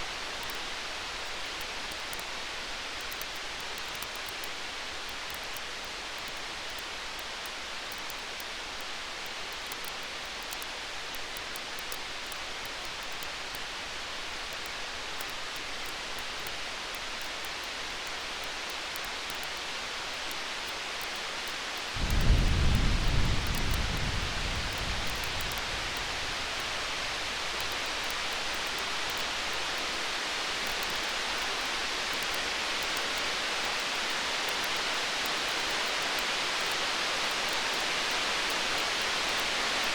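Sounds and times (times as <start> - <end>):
campfire crackle: 0.0 - 39.9
distant thunder rumble: 22.0 - 27.7.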